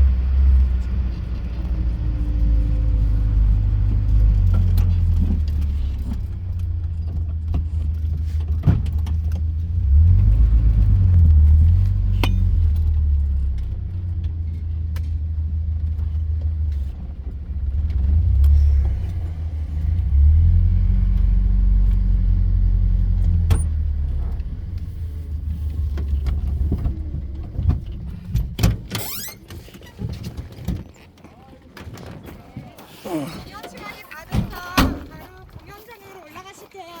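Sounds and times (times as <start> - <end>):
off-road vehicle engine drone: 0.0 - 35.8
rattles and knocks: 1.4 - 21.1, 23.0 - 32.5.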